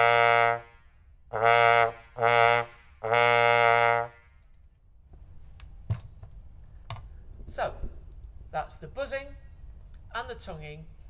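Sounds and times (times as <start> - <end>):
trombone low notes: 0.0 - 4.3.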